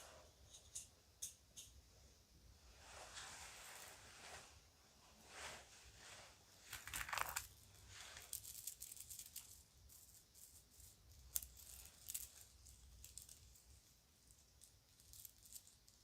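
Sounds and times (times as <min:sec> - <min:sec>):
jewelry rattling and clicking: 0:06.7 - 0:16.0.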